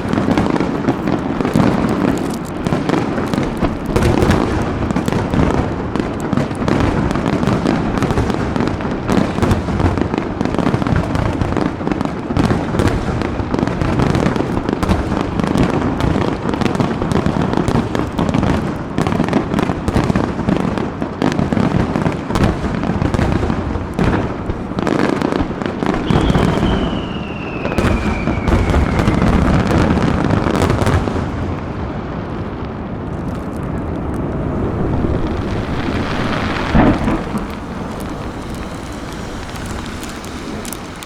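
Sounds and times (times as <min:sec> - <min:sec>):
loud firework bang: 0:21.7 - 0:32.0, 0:33.0 - 0:41.0
firework whistle falling in pitch: 0:25.9 - 0:29.7
firework shell bursts: 0:34.3 - 0:41.0.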